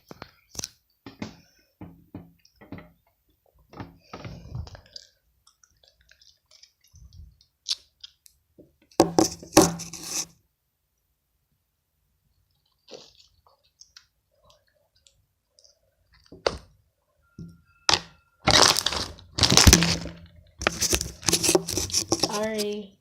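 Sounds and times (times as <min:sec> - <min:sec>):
slime crackling and popping: 0:17.9 - 0:21.9.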